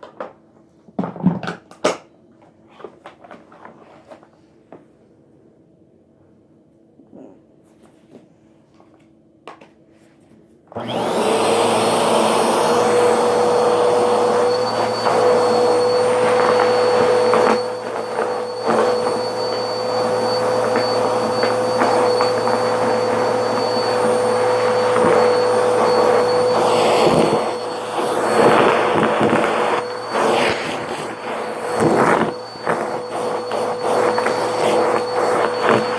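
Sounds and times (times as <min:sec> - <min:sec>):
vacuum cleaner running with whine: 0:10.7 - 0:35.9.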